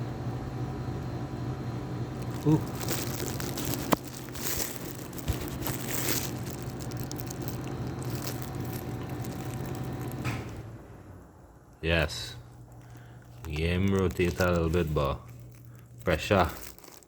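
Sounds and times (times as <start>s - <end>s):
steady low hum: 0.0s - 17.0s
scraping and crinkling: 2.2s - 10.6s, 11.8s - 17.0s.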